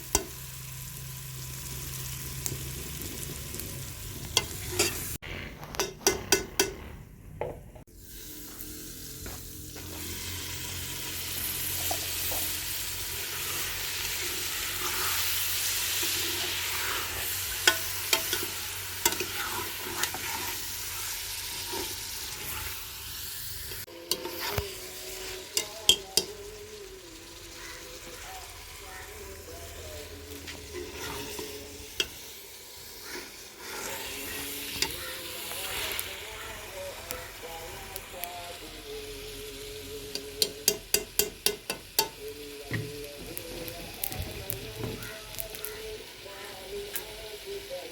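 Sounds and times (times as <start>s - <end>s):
food sizzling in a pot: 0.0s - 5.2s, 7.8s - 47.9s
spoon stirring: 4.3s - 5.1s
spoon knocking against pot: 5.8s - 6.8s.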